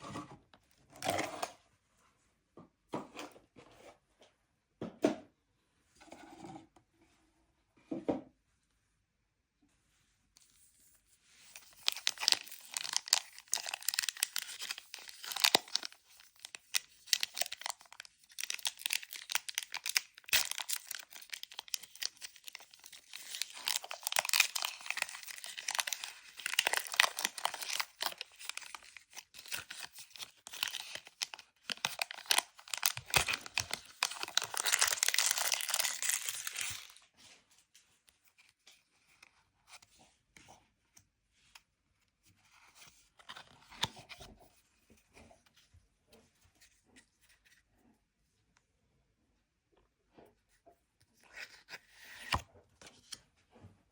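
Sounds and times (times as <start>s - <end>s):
plastic wrapping crinkling: 11.4s - 37.1s.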